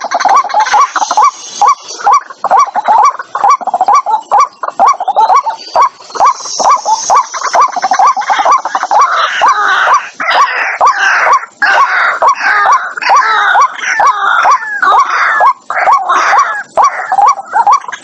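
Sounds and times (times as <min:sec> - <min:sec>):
bird calling rising notes: 0:00.0 - 0:12.2
harsh croaking bird calls: 0:00.0 - 0:18.0.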